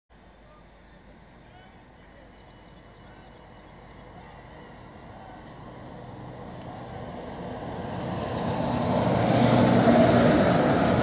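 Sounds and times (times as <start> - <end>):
train passing at speed: 2.8 - 11.0.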